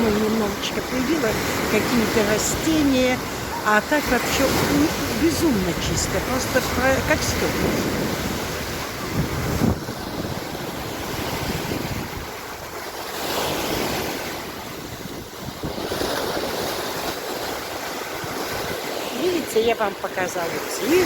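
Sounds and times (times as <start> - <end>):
waves breaking on shore: 0.0 - 21.0
wind rumbling on microphone: 4.3 - 19.4.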